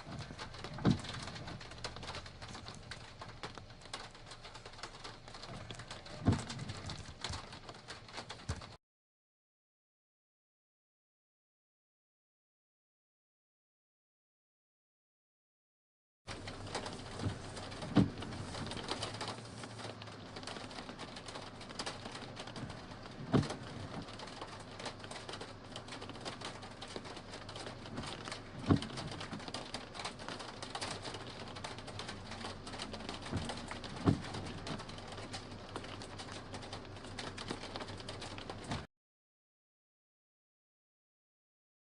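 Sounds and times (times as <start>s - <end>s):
rain pattering: 0.0s - 8.8s, 16.3s - 38.9s
dull thumps: 16.4s - 20.0s.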